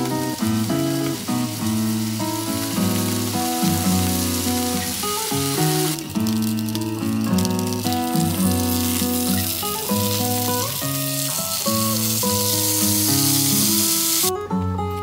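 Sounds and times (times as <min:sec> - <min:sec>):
sausages sizzling in oil: 0:00.0 - 0:14.3
background music with melody: 0:00.0 - 0:15.0.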